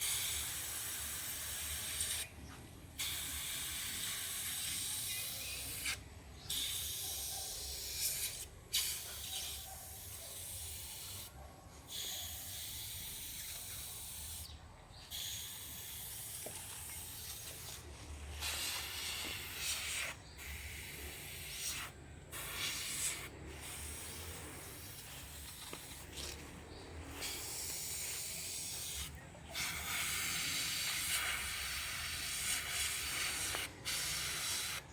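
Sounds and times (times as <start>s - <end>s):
airbrush spraying hiss: 0.0s - 2.3s, 3.0s - 11.3s, 11.9s - 14.5s, 15.1s - 26.4s, 27.1s - 34.8s.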